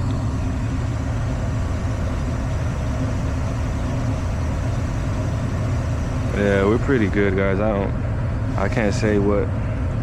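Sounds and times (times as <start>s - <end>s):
furnace blower rumbling: 0.0s - 10.0s.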